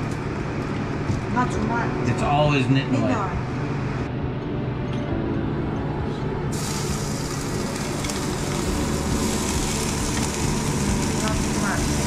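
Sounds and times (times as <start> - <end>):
steady low hum: 0.0 - 12.0
oil sizzling in a wok: 6.5 - 12.0.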